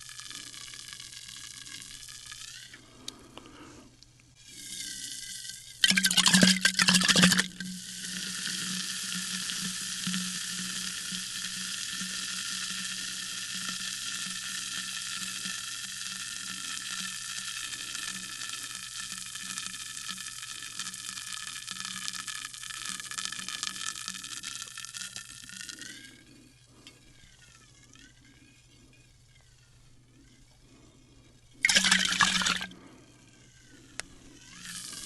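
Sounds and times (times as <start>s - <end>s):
water pouring into a glass: 5.8s - 7.6s, 31.6s - 32.7s
carbonation fizzing: 5.8s - 12.3s, 31.6s - 32.7s.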